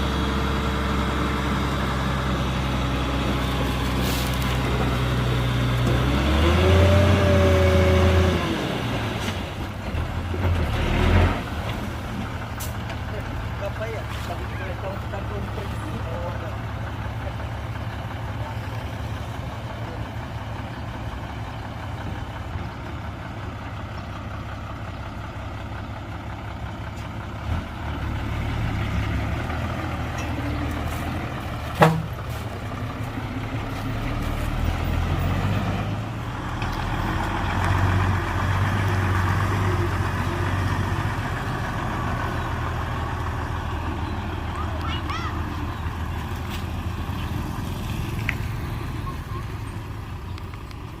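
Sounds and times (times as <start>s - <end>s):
heavy machinery diesel engine: 0.0s - 51.0s
sharp knock: 31.8s - 32.1s.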